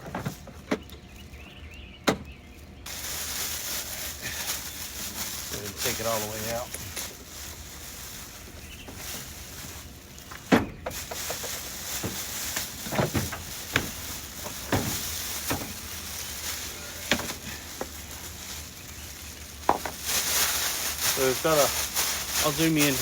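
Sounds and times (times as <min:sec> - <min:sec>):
cardboard packaging rustling: 0:02.8 - 0:23.0
knocks and thumps: 0:10.4 - 0:15.8.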